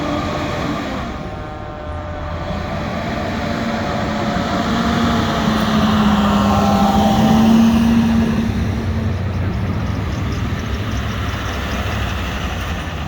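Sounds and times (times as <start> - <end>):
truck diesel engine pulling away: 0.0 - 13.0.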